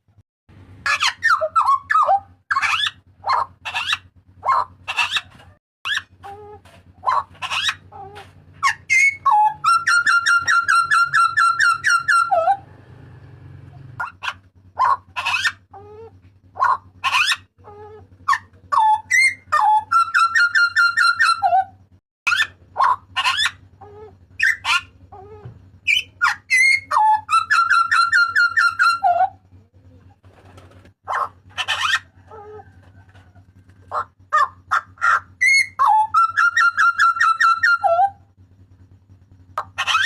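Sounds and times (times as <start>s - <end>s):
bird whistled calls: 8.6s - 12.6s, 18.3s - 29.4s, 34.0s - 38.2s, 39.6s - 40.0s.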